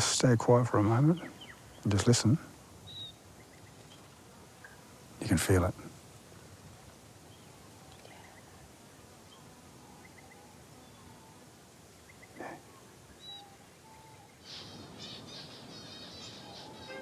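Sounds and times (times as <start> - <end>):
small bird chirps: 2.8 - 4.0, 13.2 - 17.0
bird call: 13.2 - 17.0.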